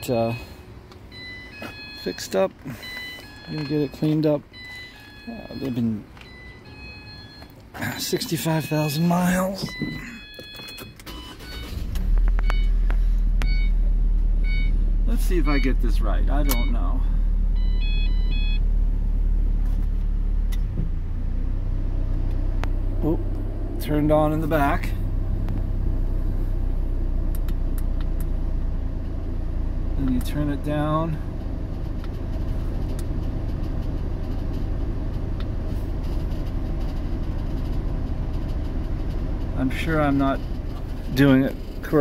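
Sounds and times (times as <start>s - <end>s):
van engine idling: 0.0s - 42.0s
electronic beeps: 1.2s - 7.5s, 8.4s - 12.7s.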